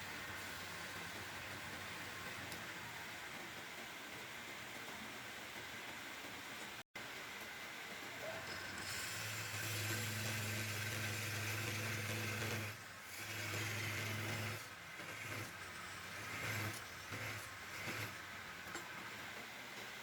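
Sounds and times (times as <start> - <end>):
electric power tool motor: 8.5 - 18.3.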